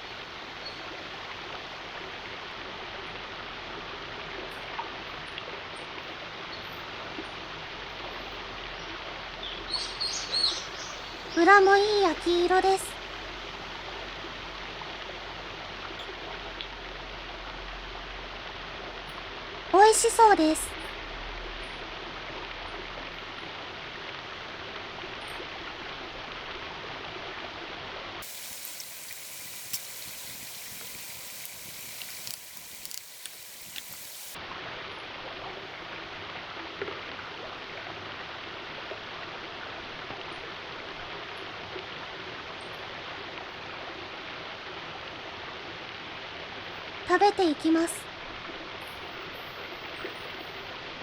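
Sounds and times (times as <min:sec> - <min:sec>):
running water rushing: 0:00.0 - 0:51.0
hissing with sharp crackles: 0:28.2 - 0:34.4.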